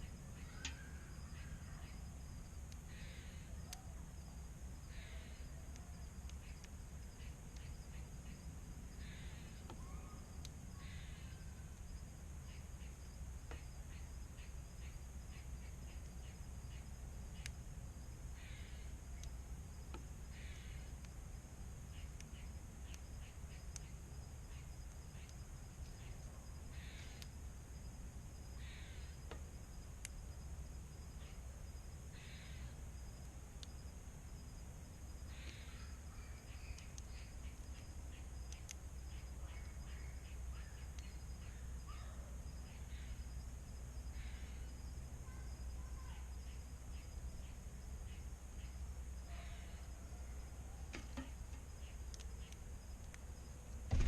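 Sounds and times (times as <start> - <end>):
crow-like caws: 2.9 - 3.6, 4.9 - 5.5, 9.0 - 10.2, 10.8 - 11.5, 18.4 - 18.9, 20.3 - 20.9, 26.7 - 27.2, 28.6 - 29.1, 32.2 - 32.7, 35.3 - 36.3, 44.2 - 44.7, 49.3 - 49.9
faint ticks: 4.9 - 9.8, 10.4 - 17.6, 18.4 - 21.2, 21.9 - 27.4, 32.2 - 34.0, 35.2 - 41.6, 50.9 - 53.8.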